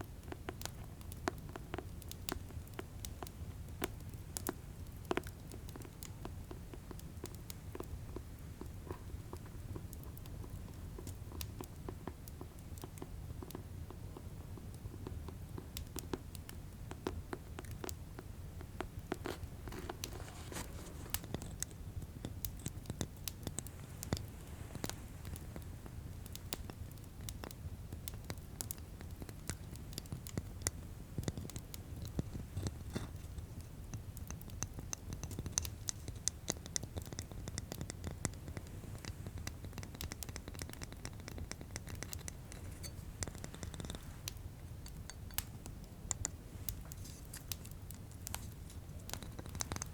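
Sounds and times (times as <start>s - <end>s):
fireplace rumble: 17.6s - 49.9s.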